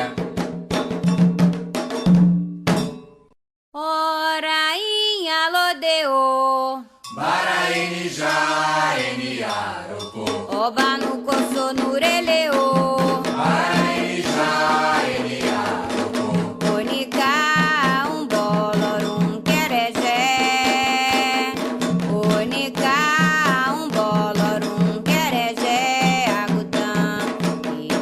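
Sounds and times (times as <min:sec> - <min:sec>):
chorus singing: 0:00.0 - 0:00.3, 0:07.1 - 0:21.4
lead voice singing: 0:00.0 - 0:00.3, 0:07.1 - 0:27.4
drums: 0:00.0 - 0:03.1, 0:10.2 - 0:28.0.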